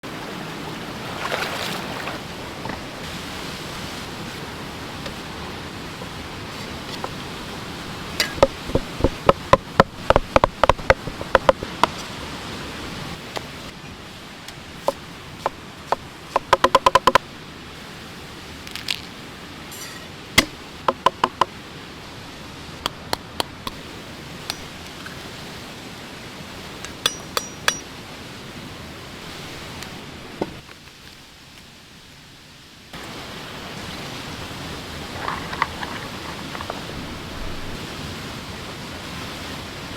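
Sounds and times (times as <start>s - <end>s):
knife striking cutting board: 8.2s - 12.1s, 24.5s - 24.7s, 26.9s - 27.8s.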